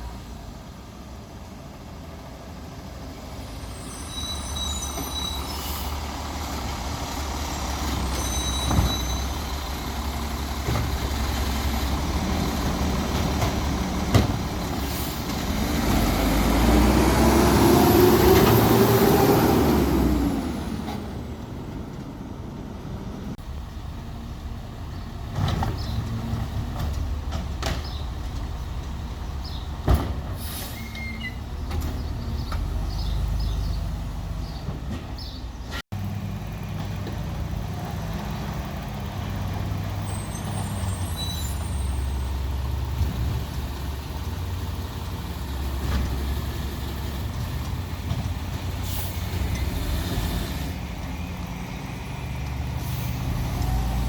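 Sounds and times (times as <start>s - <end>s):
garbage truck engine revving: 6.0s - 23.4s, 36.0s - 54.0s.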